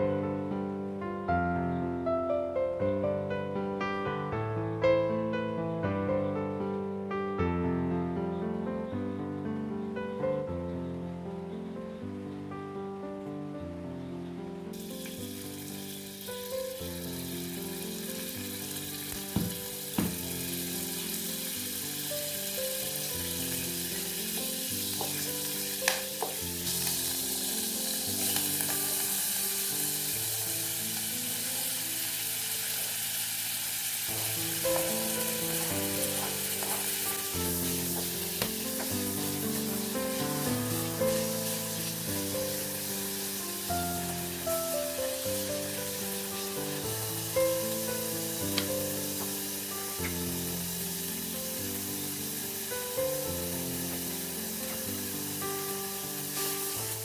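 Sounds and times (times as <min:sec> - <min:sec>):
soft background music: 0:00.0 - 0:57.0
food sizzling in a pan: 0:14.7 - 0:57.0
sharp clicks: 0:14.8 - 0:33.2, 0:34.0 - 0:57.0.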